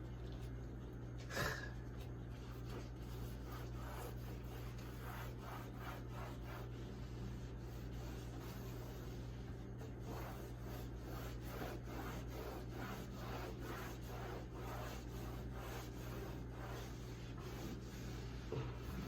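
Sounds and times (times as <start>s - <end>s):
hand scrubbing refrigerator: 0.0s - 19.0s.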